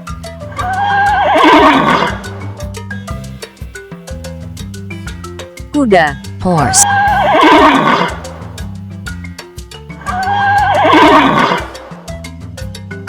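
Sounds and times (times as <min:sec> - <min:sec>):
background music with beat: 0:00.0 - 0:13.0
horse whinnying: 0:00.5 - 0:02.5, 0:06.7 - 0:08.6, 0:10.0 - 0:12.0.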